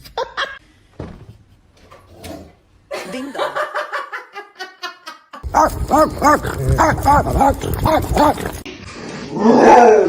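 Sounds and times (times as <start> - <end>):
dog barking: 5.4 - 8.7.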